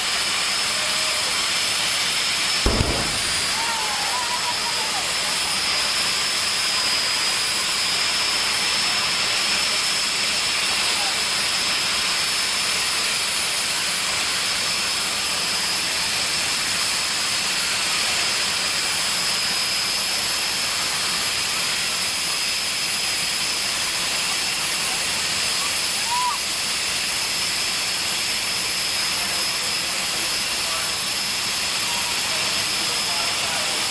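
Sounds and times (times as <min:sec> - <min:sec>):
jet engine rushing hiss: 0:00.0 - 0:08.9.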